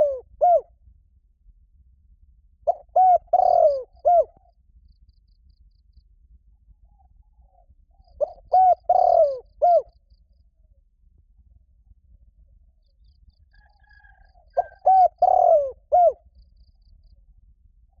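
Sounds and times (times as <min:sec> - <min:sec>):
dove cooing: 0:00.0 - 0:00.7, 0:02.7 - 0:04.4, 0:08.1 - 0:09.9, 0:13.8 - 0:16.2.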